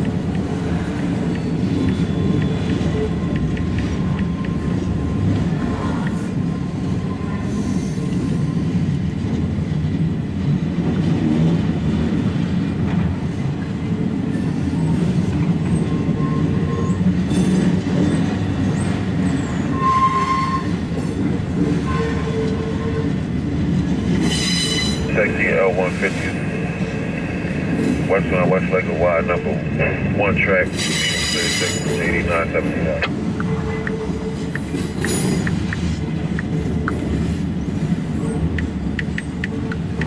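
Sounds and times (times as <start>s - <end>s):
rumble of train wheels on rails: 0.0s - 40.0s
wheel squeals: 15.8s - 20.8s.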